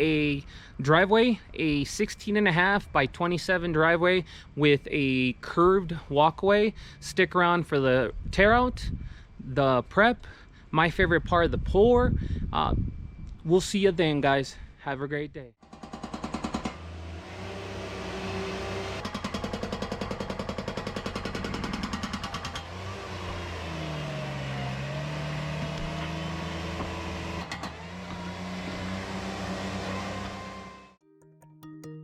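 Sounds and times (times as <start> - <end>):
loader engine working: 15.7 - 31.0
fast even rattle: 19.0 - 22.7.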